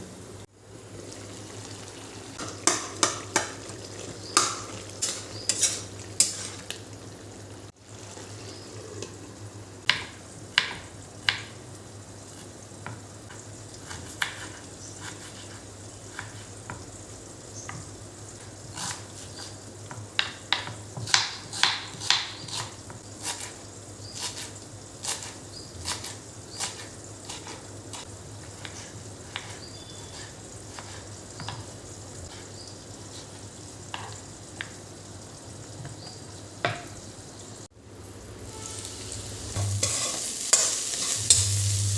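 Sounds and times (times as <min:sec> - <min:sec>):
food sizzling in a pan: 0:00.0 - 0:41.9
utensil knocking against pan: 0:02.4 - 0:03.6.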